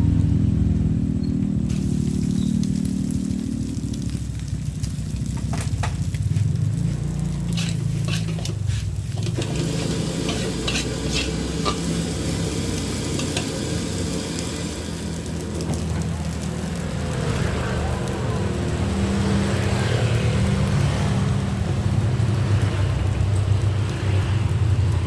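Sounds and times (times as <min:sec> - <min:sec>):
low steady rumble: 0:00.0 - 0:18.8
food sizzling: 0:00.0 - 0:25.0
metal spatula scraping a wok: 0:07.4 - 0:14.2.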